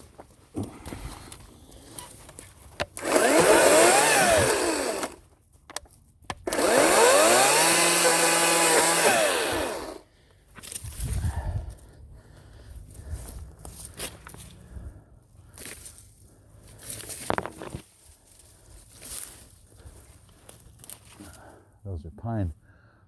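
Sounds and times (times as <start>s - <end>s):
battery chainsaw motor whine: 2.9s - 5.2s, 6.4s - 10.0s.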